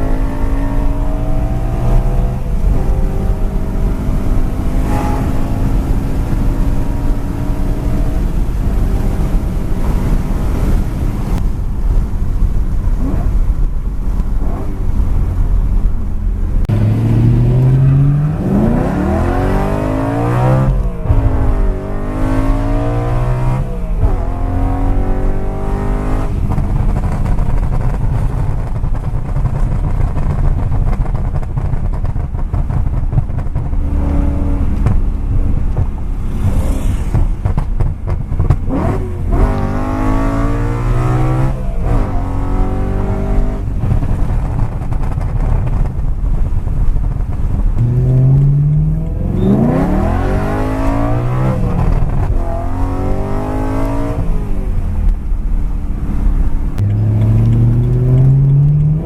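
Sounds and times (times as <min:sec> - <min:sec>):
car engines revving: 0:00.0 - 0:59.0
low engine rumble: 0:00.0 - 0:59.0
cars accelerating past: 0:16.6 - 0:26.6, 0:33.8 - 0:43.7, 0:56.8 - 0:59.0.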